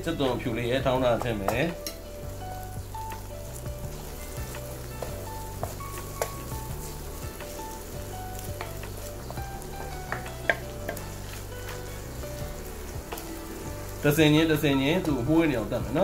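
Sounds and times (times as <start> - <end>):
onions sizzling in oil: 0.0 - 16.0
spoon tapping pan: 2.8 - 11.8, 13.0 - 13.4
wooden spoon scraping pan: 3.8 - 14.1.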